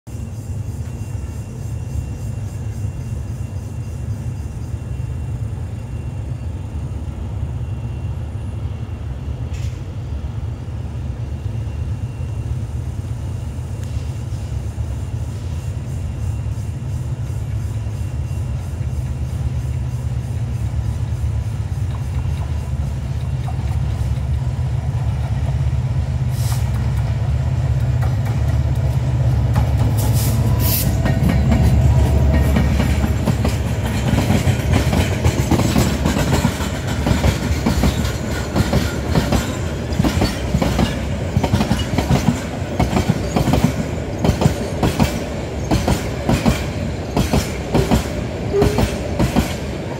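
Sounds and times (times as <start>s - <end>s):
locomotive engine rumble: 0.7s - 49.9s
train wheels clacking over rail joints: 18.8s - 25.6s, 26.3s - 49.9s.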